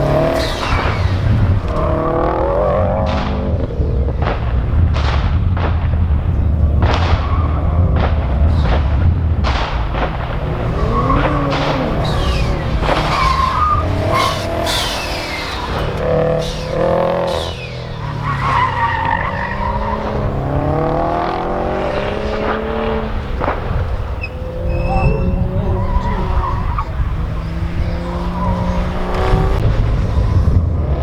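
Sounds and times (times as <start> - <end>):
tyres squealing: 0.0 - 2.5, 6.7 - 30.5
car engine running under load: 0.0 - 31.0.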